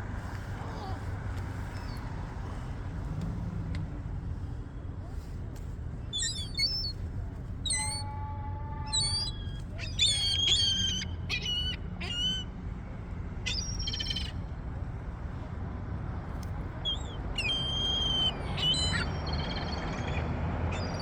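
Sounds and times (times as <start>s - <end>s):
seagulls calling: 6.1s - 6.9s, 7.6s - 8.2s, 8.8s - 12.6s, 13.4s - 14.4s, 16.8s - 21.0s.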